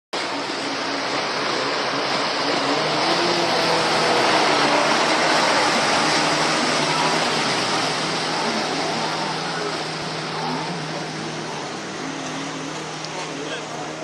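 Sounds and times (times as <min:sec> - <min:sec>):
boat motor running on water: 0:00.2 - 0:14.0.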